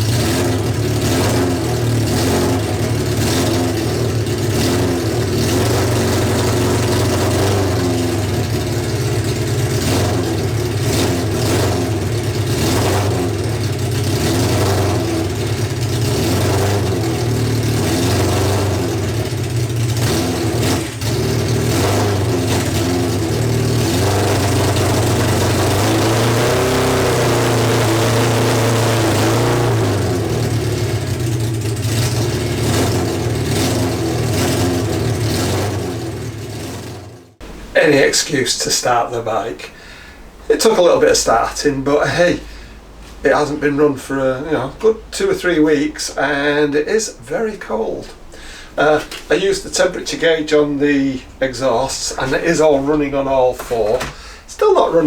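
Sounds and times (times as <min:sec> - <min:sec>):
motorcycle engine running: 0:00.0 - 0:37.7.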